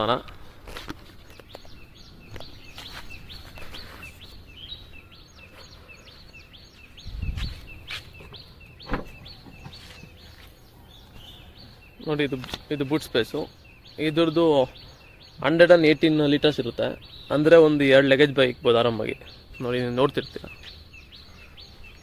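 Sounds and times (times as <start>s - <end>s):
small bird chirping: 0.8s - 22.0s
low thump: 8.8s - 9.7s.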